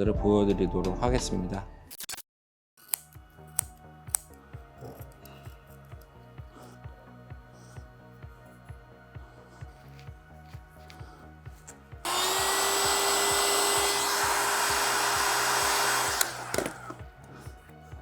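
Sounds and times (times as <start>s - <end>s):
background music with steady beat: 3.2s - 12.1s, 14.7s - 18.0s
electric power tool running: 12.0s - 17.1s
power tool switch click: 12.1s - 17.0s.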